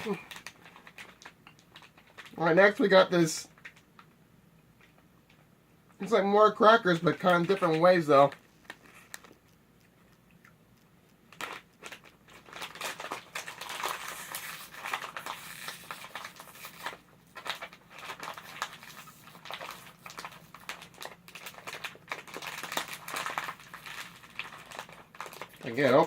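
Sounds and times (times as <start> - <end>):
plastic snack packet crinkling: 0.0 - 4.1, 6.0 - 9.6, 11.3 - 26.0.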